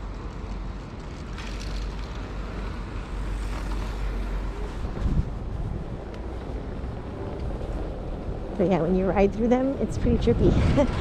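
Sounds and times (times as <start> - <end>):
tyres on road: 0.0 - 11.0
wind on microphone: 4.2 - 11.0.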